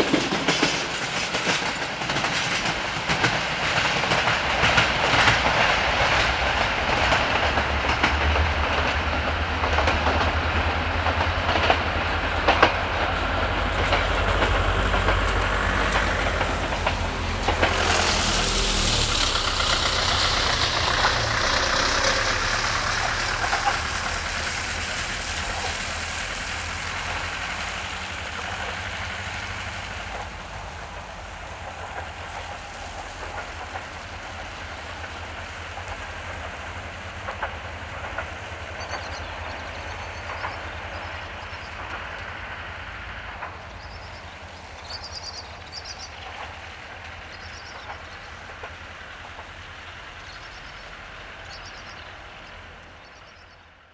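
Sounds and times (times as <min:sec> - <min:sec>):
diesel train engine hum: 0:00.0 - 0:53.9
train wheels rolling: 0:00.0 - 0:53.9
wheel clicks over rail joints: 0:34.8 - 0:42.4.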